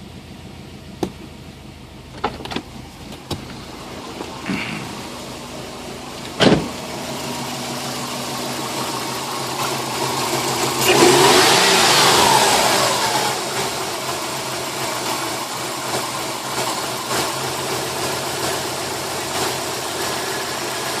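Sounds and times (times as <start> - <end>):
car engine idling unevenly: 0.0 - 21.0
engine revving: 3.8 - 21.0.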